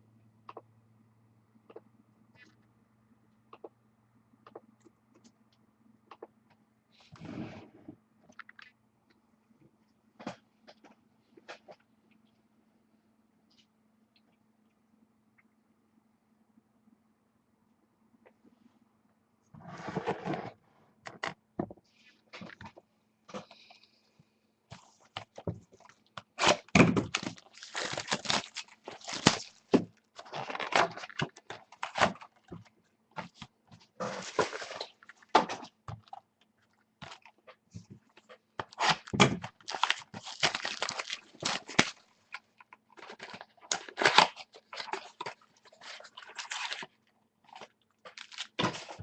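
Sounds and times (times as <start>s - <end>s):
faint electrical hum: 0.0s - 49.0s
wrappers crinkling and rustling: 25.8s - 32.5s, 38.7s - 49.0s.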